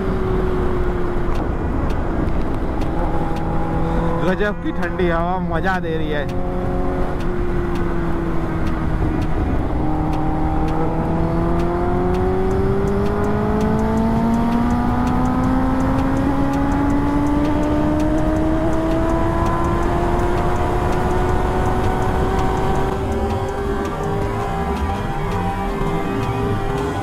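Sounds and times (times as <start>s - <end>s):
wind rush: 0.0s - 16.8s
motorcycle engine revving up: 3.0s - 27.0s.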